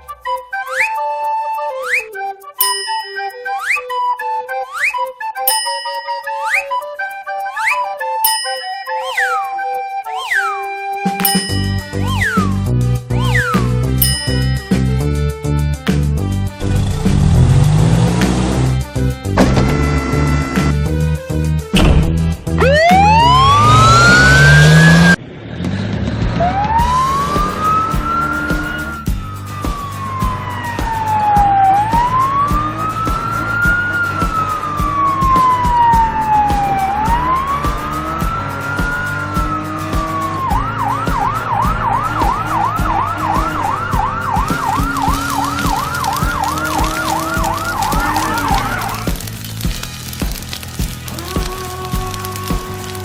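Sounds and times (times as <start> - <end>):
low backing music: 11.2 - 25.2, 26.4 - 53.0
wailing siren: 11.8 - 13.6, 19.4 - 20.8, 22.5 - 25.2, 26.4 - 53.0.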